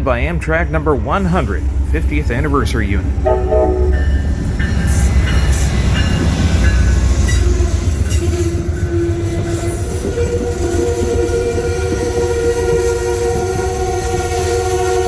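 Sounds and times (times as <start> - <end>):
train rumbling: 0.0 - 15.0
steady pitched tone: 3.2 - 4.7.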